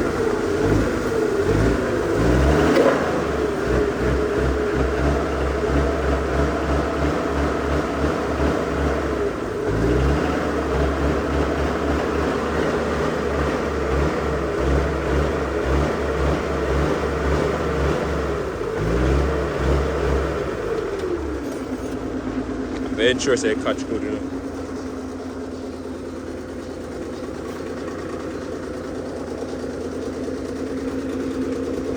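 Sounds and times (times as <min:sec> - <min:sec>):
engine running with low throb: 0:00.0 - 0:31.9.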